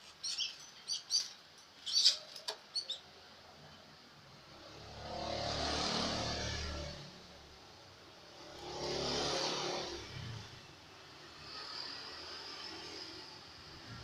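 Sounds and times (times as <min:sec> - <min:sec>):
vehicles passing by: 0:03.5 - 0:14.0.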